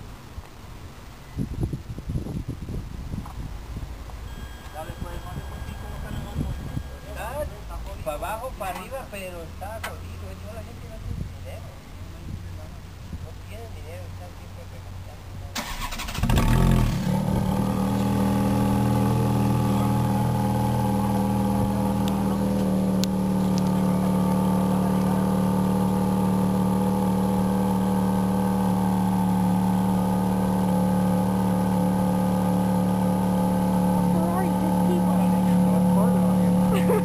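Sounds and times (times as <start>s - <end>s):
car engine revving and idling: 15.7s - 37.0s.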